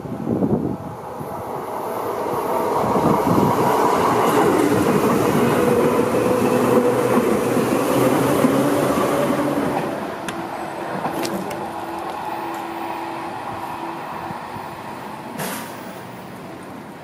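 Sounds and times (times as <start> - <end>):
electric train running on tracks: 0.0 - 17.0.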